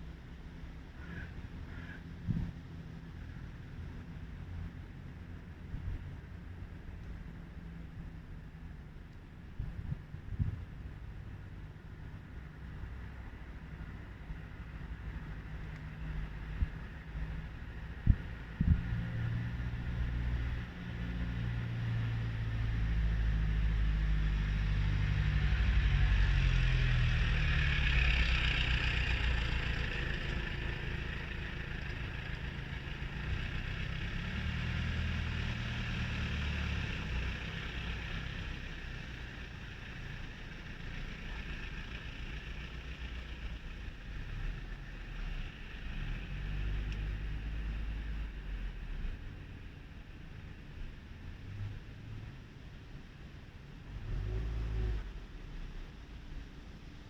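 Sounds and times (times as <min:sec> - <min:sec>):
wind rumble on microphone: 0:01.3 - 0:08.8, 0:09.4 - 0:12.0, 0:14.0 - 0:28.9.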